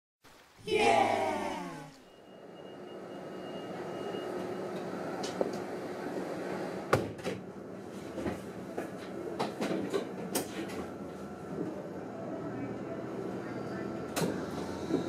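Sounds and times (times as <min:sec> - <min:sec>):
voice: 0:00.6 - 0:02.0
train running hum: 0:02.8 - 0:15.0.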